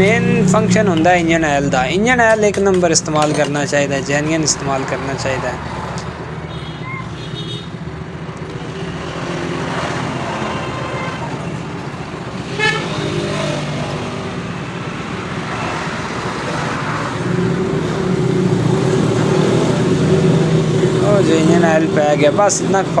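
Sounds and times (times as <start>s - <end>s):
horn toot: 12.5s - 13.5s.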